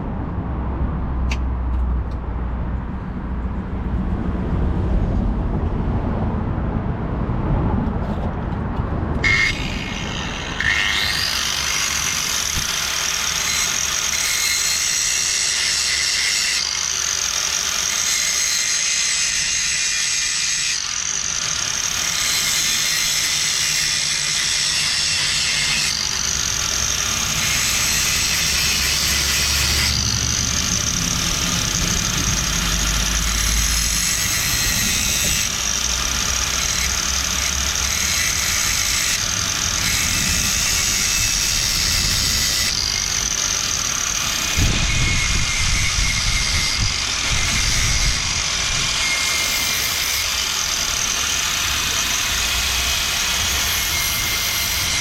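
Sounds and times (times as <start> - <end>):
low rumble: 0.0 - 10.6
angle grinder grinding steel: 9.2 - 55.0.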